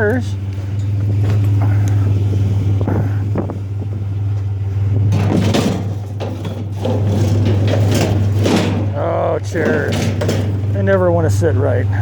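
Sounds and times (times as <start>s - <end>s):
truck engine idling: 0.0s - 12.0s
metal chairs scraping: 5.1s - 11.4s.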